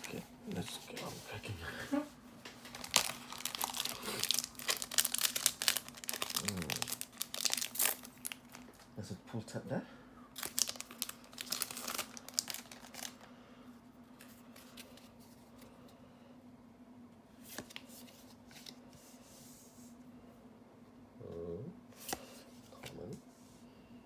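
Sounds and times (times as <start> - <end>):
wrapper tearing and crinkling: 2.6 - 8.8, 10.4 - 13.3.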